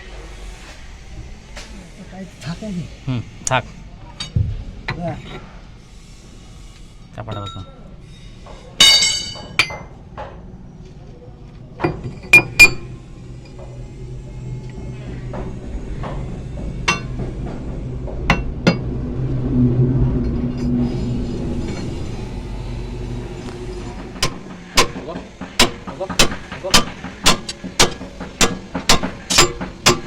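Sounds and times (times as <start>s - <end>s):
metal tools clinking on metal parts: 8.8s - 9.9s
low engine hum: 9.9s - 30.0s.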